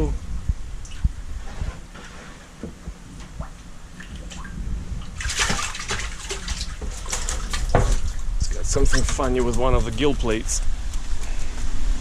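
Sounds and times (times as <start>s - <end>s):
water sloshing and splashing: 0.8s - 10.2s.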